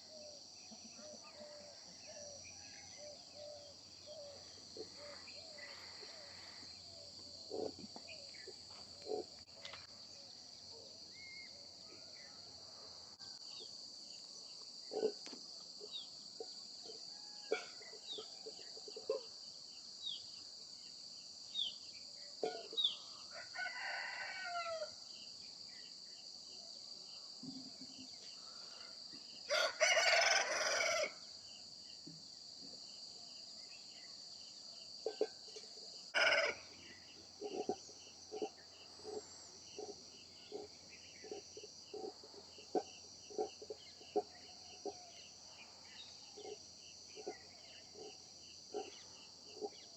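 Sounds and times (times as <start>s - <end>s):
crickets chirping: 0.0s - 49.9s
rooster crowing: 23.3s - 24.9s, 29.5s - 31.2s, 36.2s - 36.7s.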